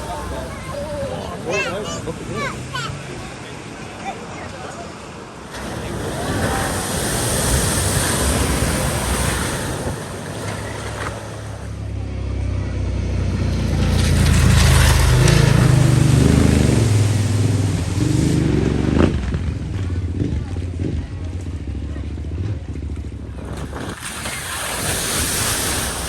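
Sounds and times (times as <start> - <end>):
water rushing and splashing: 0.0 - 12.0, 13.1 - 19.7, 23.4 - 26.0
car engine low note: 10.4 - 23.6.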